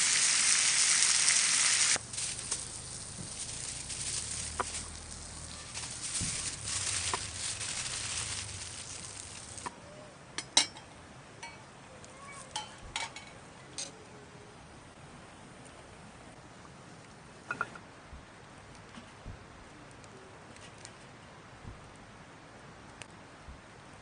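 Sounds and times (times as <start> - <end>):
meat sizzling on a griddle: 0.0 - 9.7.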